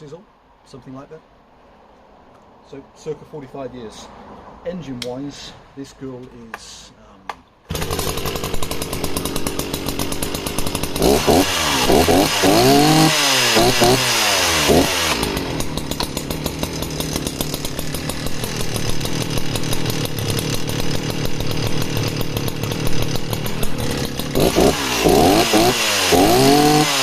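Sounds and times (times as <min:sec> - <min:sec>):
chainsaw engine revving and idling: 0:07.7 - 0:27.0.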